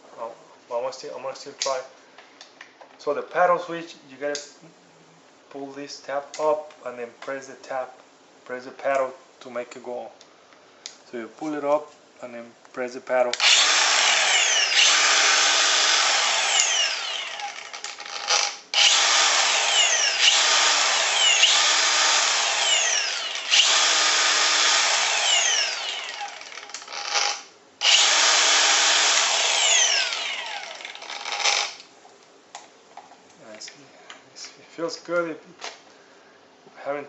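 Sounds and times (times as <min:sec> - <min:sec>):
angle grinder whining: 0:13.4 - 0:31.8.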